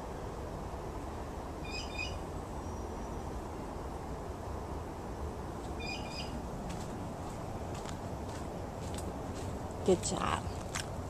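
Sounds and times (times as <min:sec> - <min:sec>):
steady low rumble: 0:00.0 - 0:11.0
small bird double chirp: 0:01.7 - 0:02.2, 0:05.8 - 0:06.4.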